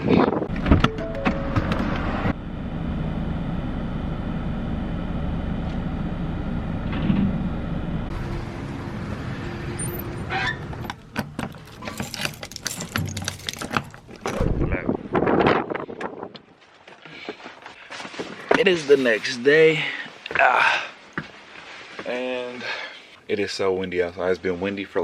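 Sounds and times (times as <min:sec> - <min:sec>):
vehicle engine hum: 0:00.5 - 0:13.0.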